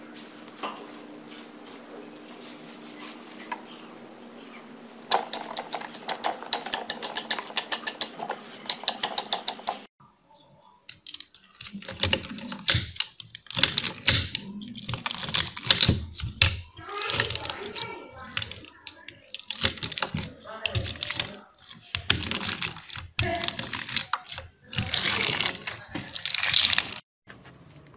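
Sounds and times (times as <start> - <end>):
slime squishing: 10.9 - 27.0.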